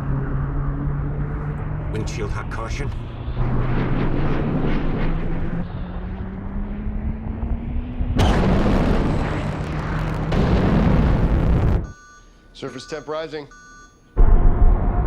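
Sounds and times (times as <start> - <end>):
jet engine roar: 0.0 - 11.8.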